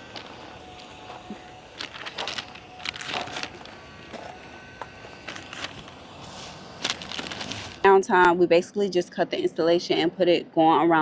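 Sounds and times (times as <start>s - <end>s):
light rustling: 0.0s - 7.9s.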